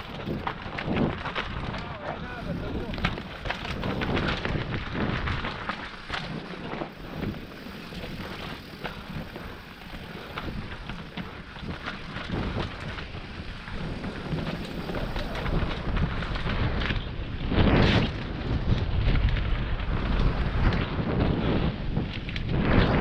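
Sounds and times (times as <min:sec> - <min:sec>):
bike knocking and rattling: 0:00.0 - 0:23.0
bike tyres rolling on dirt: 0:00.0 - 0:23.0
wind on microphone: 0:00.0 - 0:23.0.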